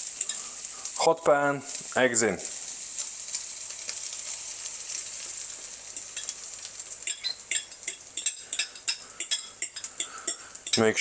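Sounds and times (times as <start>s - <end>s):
eggs sizzling in a hot pan: 0.0s - 11.0s
utensil clinking and scraping bowl: 7.0s - 11.0s.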